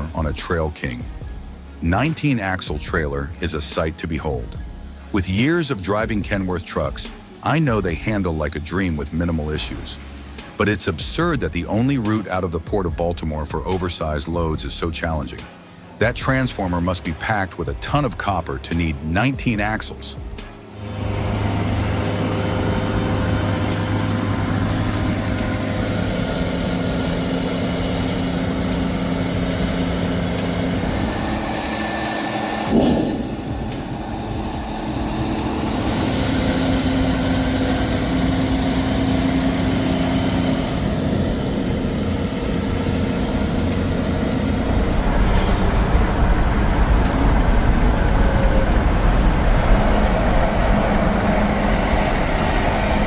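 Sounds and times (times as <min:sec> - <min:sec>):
truck diesel engine running: 0:00.0 - 0:53.0
brief sharp sound: 0:32.3 - 0:35.1.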